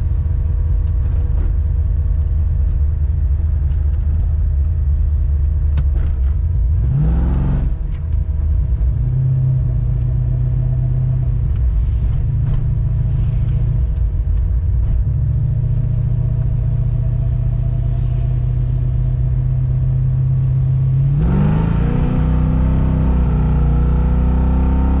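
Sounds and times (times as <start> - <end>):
turbocharged car engine revving: 6.6 - 8.0, 20.2 - 25.0.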